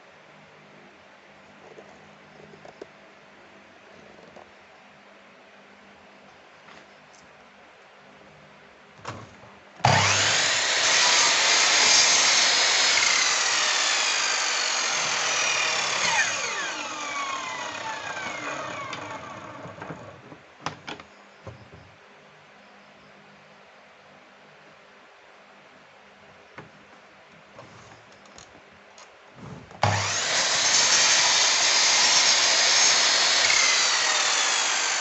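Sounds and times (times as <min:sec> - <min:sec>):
wood router motor whine: 0:09.8 - 0:20.2, 0:29.8 - 0:35.0.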